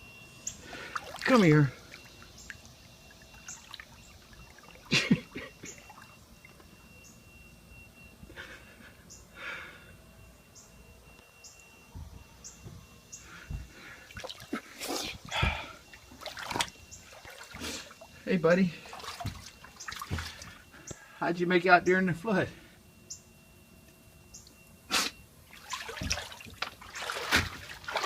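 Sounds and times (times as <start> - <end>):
floodwater sloshing and splashing: 0.6 - 6.8, 13.8 - 20.7, 25.4 - 28.0.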